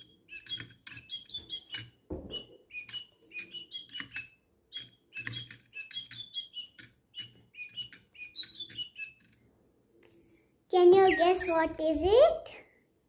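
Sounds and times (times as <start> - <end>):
toy clicks: 0.0 - 9.4
toy electronic birdsong chirps: 0.0 - 9.4, 10.8 - 12.2.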